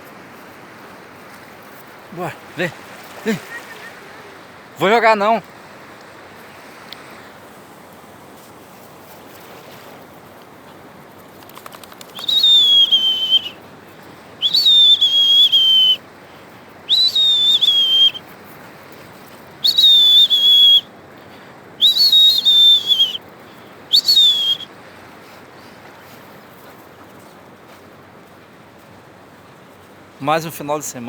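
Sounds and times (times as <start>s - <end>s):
person whistling high notes: 12.2s - 13.5s, 14.4s - 16.0s, 16.9s - 18.2s, 19.6s - 20.8s, 21.8s - 23.2s, 23.9s - 24.7s.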